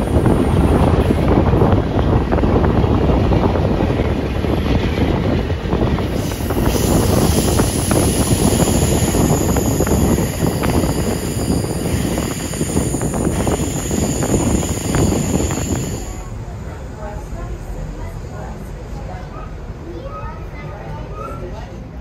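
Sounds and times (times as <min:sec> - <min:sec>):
wind buffeting microphone: 0:00.0 - 0:16.4
train rolling over rails: 0:00.0 - 0:21.1.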